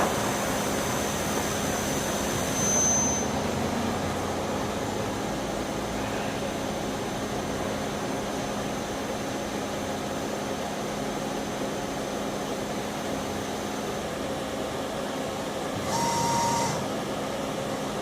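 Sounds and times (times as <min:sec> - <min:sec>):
faint high whine: 0:01.7 - 0:03.5
short tone: 0:02.5 - 0:03.5, 0:16.0 - 0:16.8.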